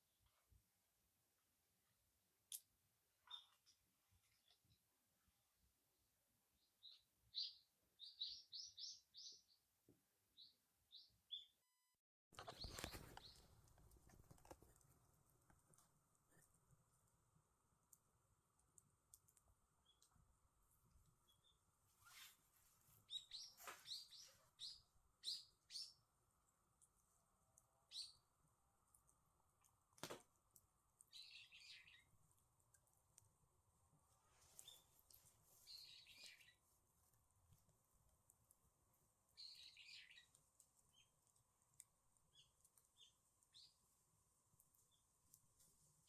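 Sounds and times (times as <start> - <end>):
faint sharp clicks: 2.5 - 2.7
songbirds chirping: 3.2 - 4.9, 6.5 - 9.7, 12.4 - 46.0
songbird high chirps: 3.3 - 3.8, 6.8 - 9.6, 10.4 - 11.6, 23.1 - 26.0, 31.1 - 32.1, 35.7 - 36.6, 39.4 - 40.3.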